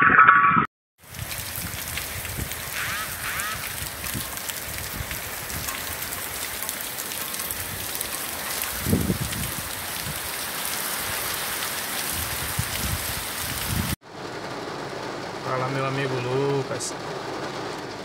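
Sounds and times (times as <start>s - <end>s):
heavy rain: 1.0s - 18.0s.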